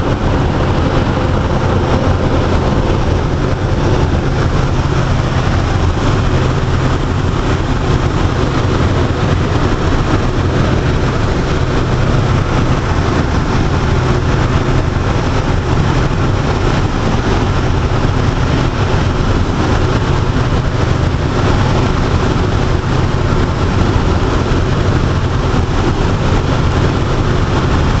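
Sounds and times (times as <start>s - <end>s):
aircraft engine droning: 0.0s - 28.0s.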